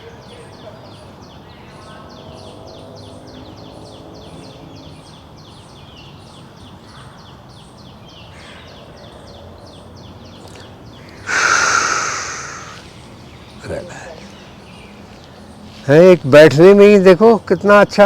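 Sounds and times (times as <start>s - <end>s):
bird chirping: 0.0s - 16.8s
loud rush of breathy noise: 10.5s - 13.1s.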